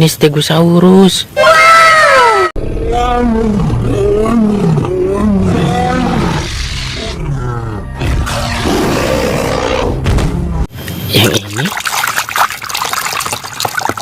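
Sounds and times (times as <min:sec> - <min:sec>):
dinosaur roaring: 0:02.6 - 0:10.0.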